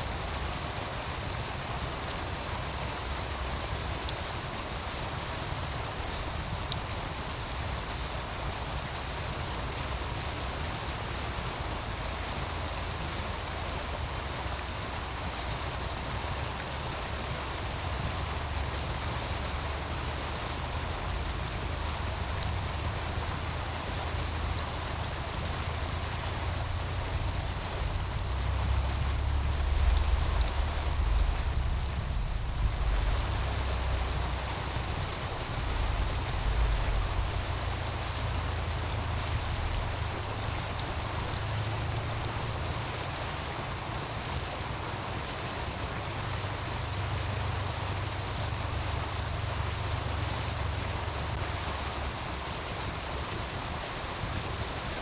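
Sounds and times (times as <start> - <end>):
fire snapping: 0.0 - 55.0
stream rushing: 0.0 - 55.0
low rumble: 17.4 - 43.0.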